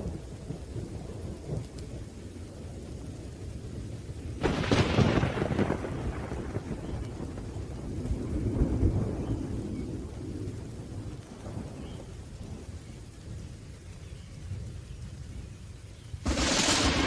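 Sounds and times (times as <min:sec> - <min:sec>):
rolling thunder rumbling: 0:00.0 - 0:15.5, 0:16.2 - 0:17.0
steady rain: 0:00.0 - 0:17.0.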